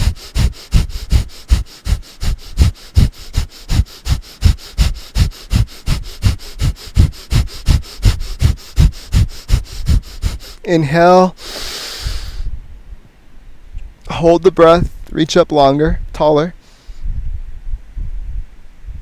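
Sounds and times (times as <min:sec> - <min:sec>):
rapid forceful nasal exhales: 0:00.0 - 0:12.6, 0:16.6 - 0:17.1.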